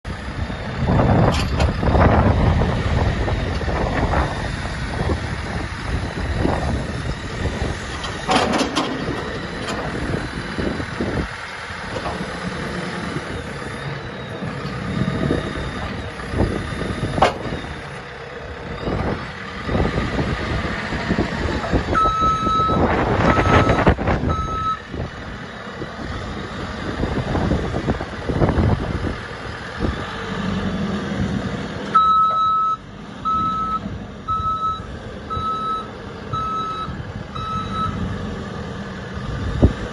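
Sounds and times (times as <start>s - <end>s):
diesel engine running: 0.0s - 39.9s
machine clanks and knocks: 7.9s - 10.0s
reversing alarm beeps: 21.9s - 24.8s, 31.9s - 38.0s.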